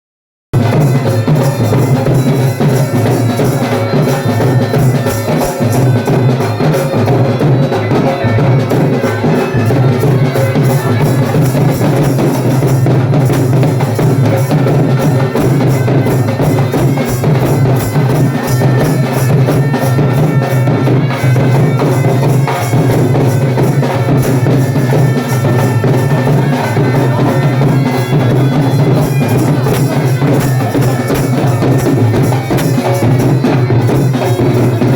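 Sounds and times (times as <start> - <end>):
drums beating: 0.5 - 34.9
reed pipe folk tune with drone: 14.3 - 34.9.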